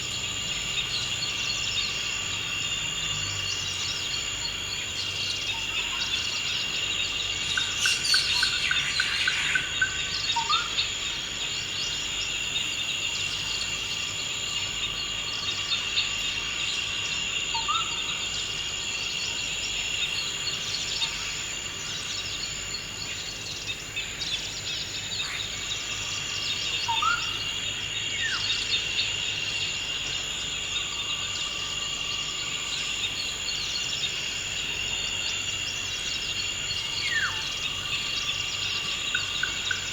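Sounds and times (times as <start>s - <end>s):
insects droning: 0.0s - 39.9s
birds calling: 4.4s - 11.0s.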